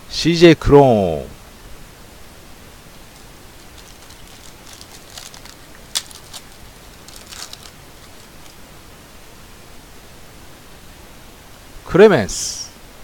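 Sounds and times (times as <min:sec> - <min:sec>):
steady hiss: 0:00.0 - 0:13.0
cards rustling and sliding: 0:03.1 - 0:08.6.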